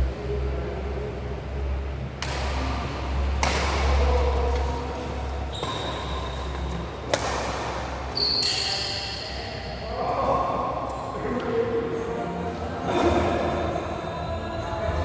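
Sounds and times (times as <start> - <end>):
echoing sports hall rumble: 0.0 - 15.0
racket hitting shuttlecock: 2.2 - 9.0.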